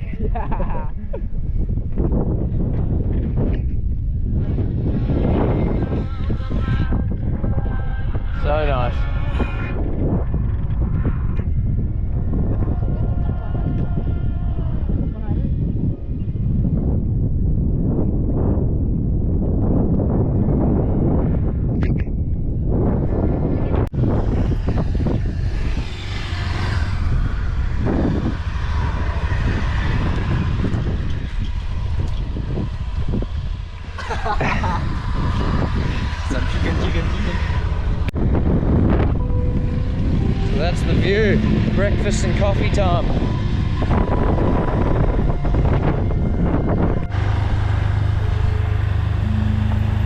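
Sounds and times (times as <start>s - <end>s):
motor vehicle low rumble: 0.0s - 50.0s
wind buffeting microphone: 0.0s - 50.0s
low engine hum: 22.3s - 50.0s.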